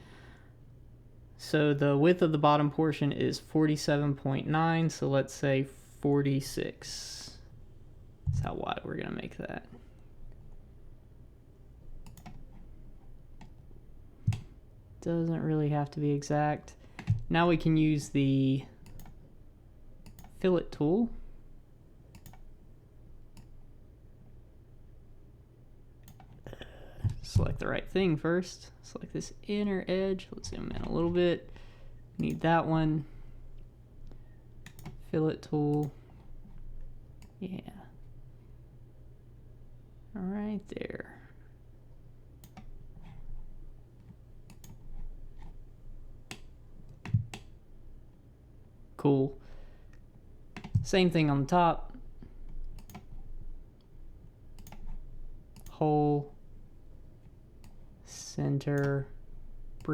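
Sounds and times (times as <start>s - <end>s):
low steady hum: 0.0s - 59.9s
computer mouse clicks: 12.0s - 12.6s, 14.2s - 14.5s, 18.8s - 19.2s, 20.0s - 20.4s, 22.1s - 22.5s, 26.0s - 26.4s, 34.6s - 35.0s, 42.4s - 43.2s, 44.0s - 45.6s, 52.5s - 53.2s, 54.6s - 55.8s, 57.6s - 57.8s.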